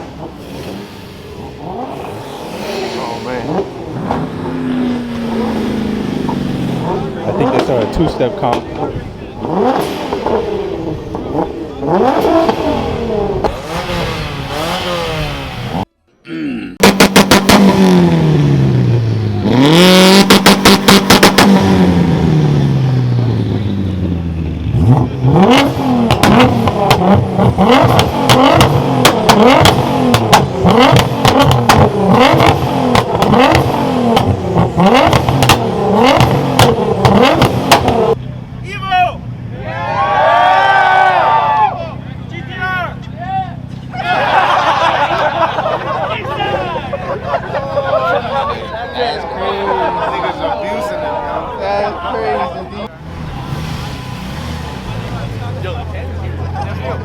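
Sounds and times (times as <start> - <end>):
car engines revving: 0.0 - 16.0, 16.8 - 57.0
car exhaust bangs and pops: 3.5 - 4.8, 6.2 - 14.8, 16.8 - 18.2, 19.6 - 22.2, 24.7 - 38.2.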